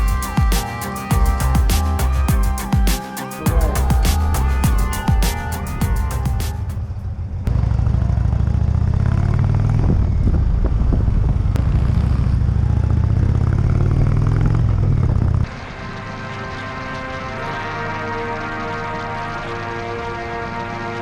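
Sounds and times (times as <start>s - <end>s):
music: 0.0s - 6.8s, 15.5s - 21.0s
motorcycle engine drone: 0.0s - 21.0s.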